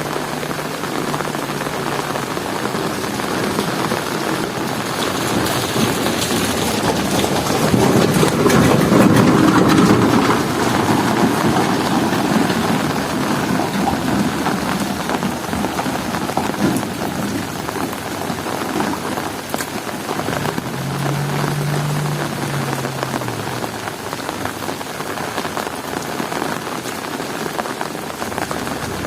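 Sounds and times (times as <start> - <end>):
heavy rain on hard surfaces: 0.0 - 29.0
low rumble: 20.2 - 25.0.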